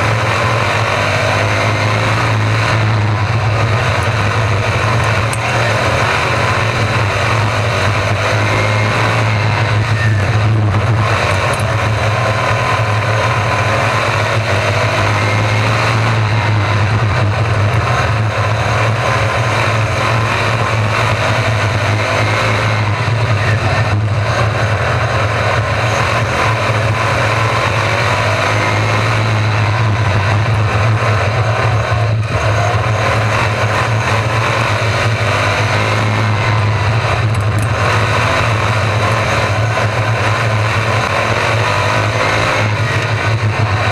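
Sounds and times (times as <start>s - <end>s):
low drone: 0.0s - 43.9s
sprint car engines racing: 0.0s - 43.9s.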